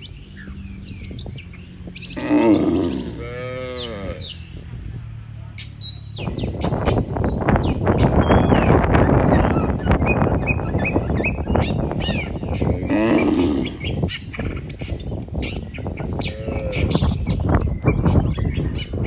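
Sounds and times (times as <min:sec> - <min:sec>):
low rushing noise: 0:00.0 - 0:19.0
small birds chirping: 0:00.0 - 0:19.0
cow mooing: 0:02.2 - 0:04.4, 0:11.8 - 0:13.9, 0:16.2 - 0:17.2.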